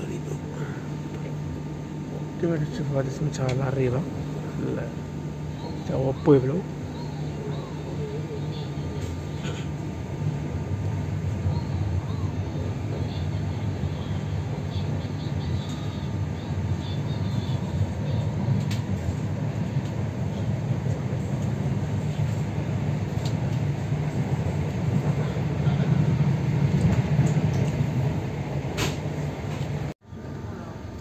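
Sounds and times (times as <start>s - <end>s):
train rumble inside carriage: 0.0s - 31.0s.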